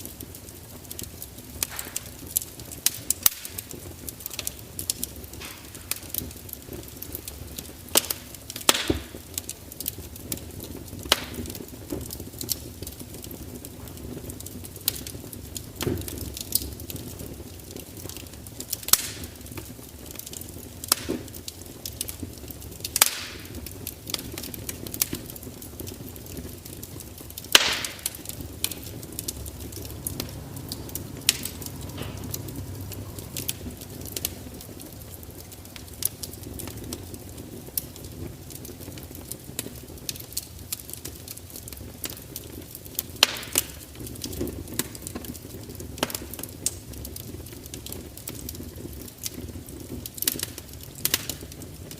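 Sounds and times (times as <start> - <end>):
wood fire crackling: 0.0 - 51.9
low steady rumble: 28.1 - 38.0.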